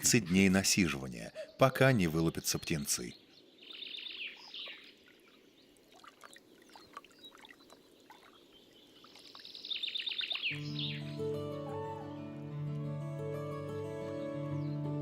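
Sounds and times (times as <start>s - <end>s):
soft bird chirps: 0.0s - 11.2s
faint woodland ambience: 0.0s - 12.5s
songbird singing high notes: 6.6s - 12.3s.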